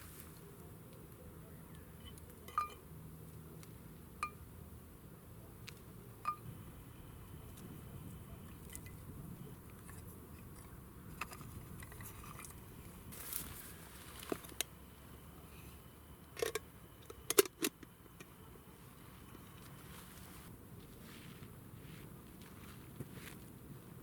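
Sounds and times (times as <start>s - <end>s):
short rustle: 13.1s - 14.4s, 19.6s - 23.4s.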